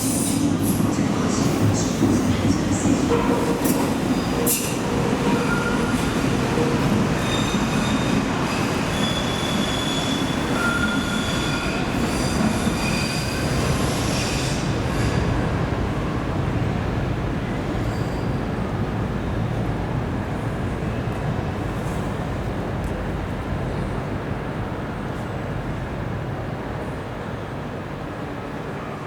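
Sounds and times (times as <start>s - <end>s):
train wheels squealing: 3.6s - 6.2s, 7.0s - 15.4s, 17.8s - 18.4s.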